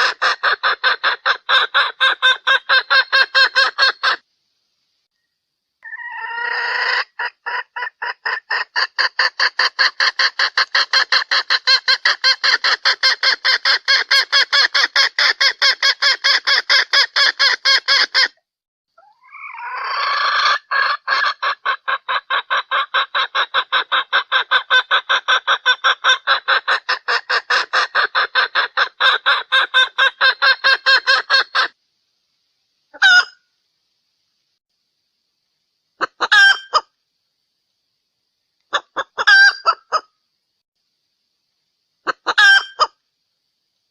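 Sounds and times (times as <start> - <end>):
junglefowl hen clucking: 0.0 - 4.2, 5.8 - 18.4, 19.0 - 31.8, 32.9 - 33.5, 36.0 - 37.0, 38.7 - 40.2, 42.0 - 43.0.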